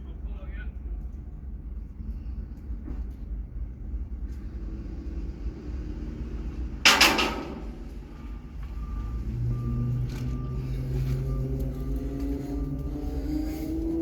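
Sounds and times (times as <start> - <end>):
low vehicle rumble: 0.0 - 14.0
loud crash: 6.8 - 7.9.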